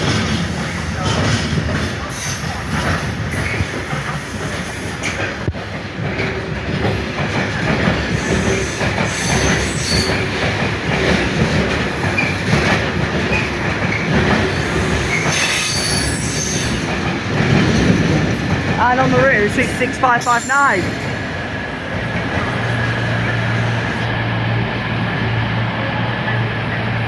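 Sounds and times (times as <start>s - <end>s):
diesel locomotive rolling past: 0.0s - 27.0s
high wheel squeals: 2.1s - 5.3s, 8.2s - 10.4s, 13.4s - 17.0s.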